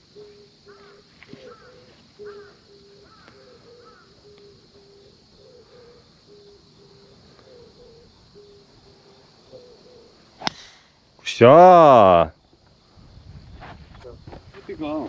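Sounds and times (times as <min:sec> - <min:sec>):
higher bird chirping: 0:00.0 - 0:11.6
low hooting bird call: 0:00.1 - 0:10.8.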